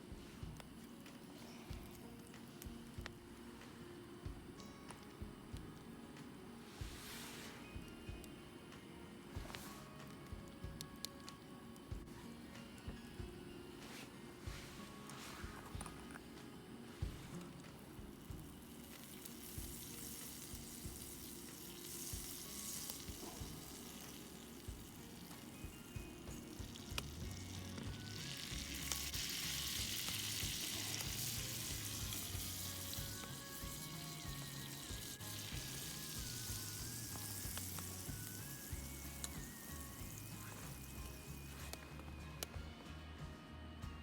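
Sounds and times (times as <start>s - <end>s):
soft background music: 0.0s - 44.0s
food sizzling in a pan: 6.6s - 8.3s, 16.8s - 41.8s.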